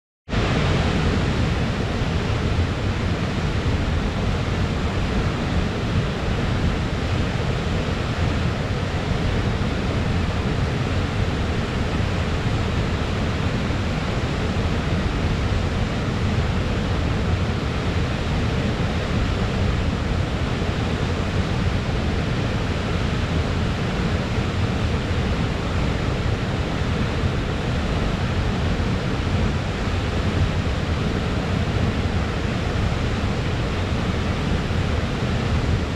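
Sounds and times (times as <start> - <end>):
waterfall rushing water: 0.3 - 35.9.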